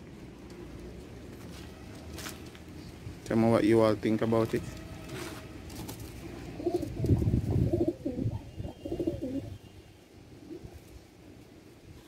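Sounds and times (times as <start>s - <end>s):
bird cooing: 6.4s - 9.6s.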